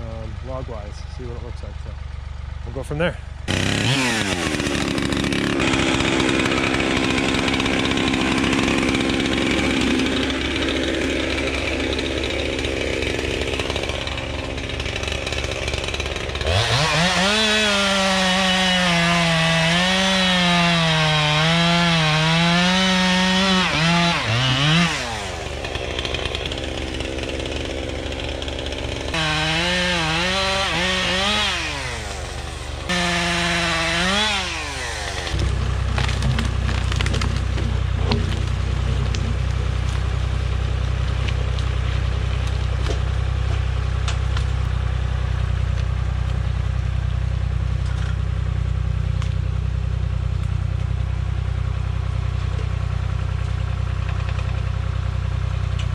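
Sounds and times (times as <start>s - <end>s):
chainsaw cutting log: 3.4s - 46.6s, 50.3s - 55.9s.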